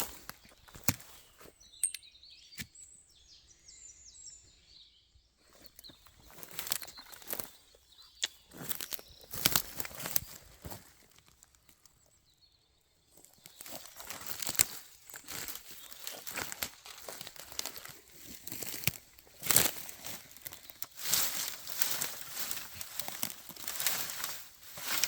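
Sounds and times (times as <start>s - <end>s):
footsteps crunching dry leaves: 0.0s - 1.6s, 5.5s - 11.8s, 13.2s - 25.0s.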